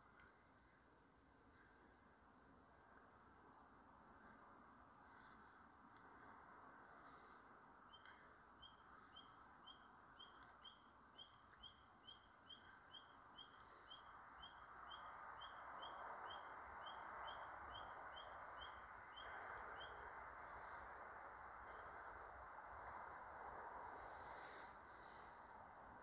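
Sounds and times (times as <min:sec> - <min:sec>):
bird chirping: 0:07.9 - 0:20.9
faint rushing hiss: 0:22.7 - 0:26.0.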